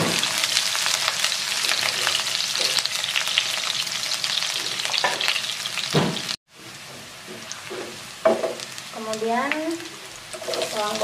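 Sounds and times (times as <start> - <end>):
shallots sizzling in hot oil: 0.0 - 11.0
spatula scraping pan: 10.4 - 11.0.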